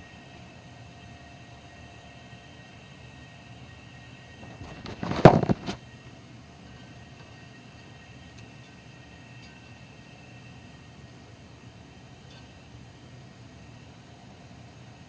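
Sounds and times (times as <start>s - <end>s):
loud rough rustling burst: 4.4s - 5.8s.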